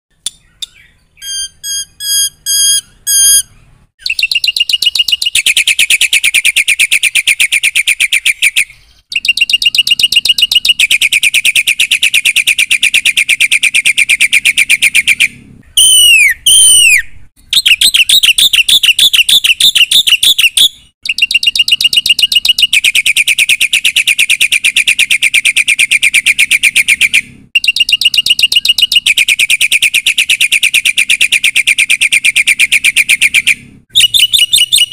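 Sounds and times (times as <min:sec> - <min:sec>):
starling singing: 0:00.3 - 0:15.0, 0:27.7 - 0:34.9
rapid chattering bird trills: 0:00.3 - 0:15.3, 0:17.5 - 0:34.9.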